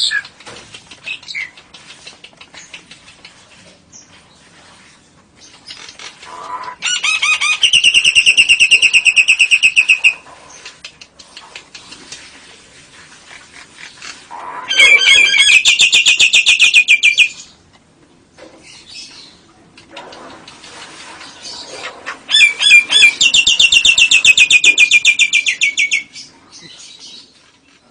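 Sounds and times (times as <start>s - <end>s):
bird rapid high chattering: 0.0s - 3.4s, 5.4s - 12.1s, 13.8s - 17.5s, 21.2s - 26.9s.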